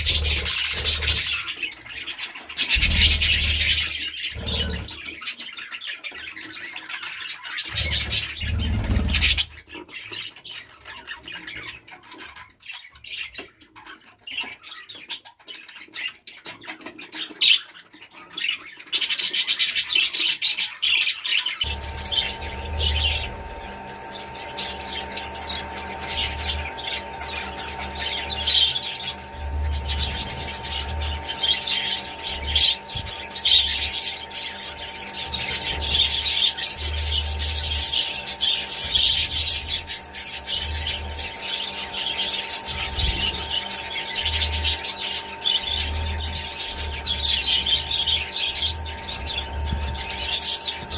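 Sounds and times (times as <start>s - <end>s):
steady low hum: 0.0s - 1.5s, 2.7s - 5.0s, 21.6s - 50.9s
budgerigars chattering and squawking: 0.0s - 50.9s.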